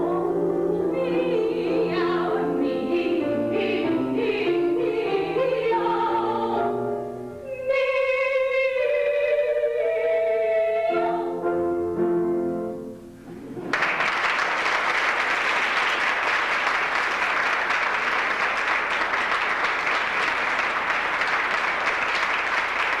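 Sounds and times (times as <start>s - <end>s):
audience applause: 13.5s - 23.0s.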